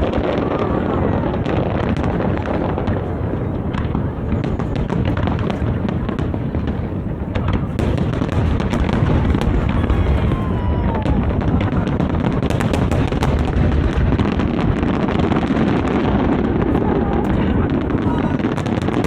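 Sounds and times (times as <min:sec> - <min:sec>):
firework crackles: 0:00.0 - 0:19.0
fireworks booming: 0:00.0 - 0:19.0
falling firework whistle: 0:08.8 - 0:11.8.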